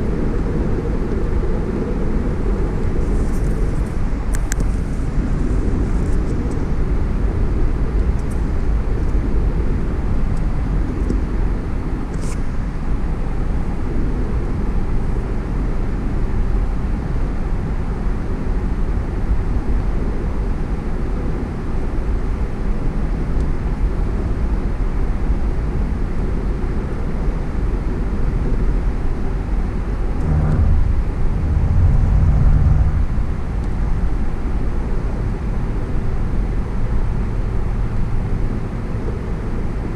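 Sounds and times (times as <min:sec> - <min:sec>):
tyre and wind road noise: 0:00.0 - 0:39.9
low hum: 0:29.8 - 0:35.4.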